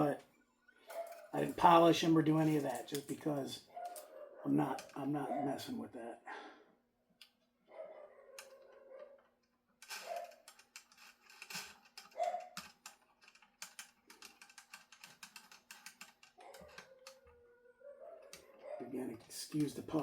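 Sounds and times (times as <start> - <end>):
puppy paws clicking and tapping: 8.3 - 20.0.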